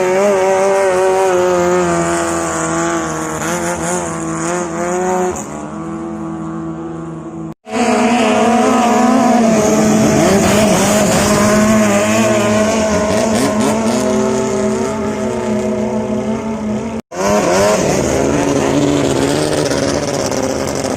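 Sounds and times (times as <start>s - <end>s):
boat diesel engine running hard: 18.0s - 20.9s.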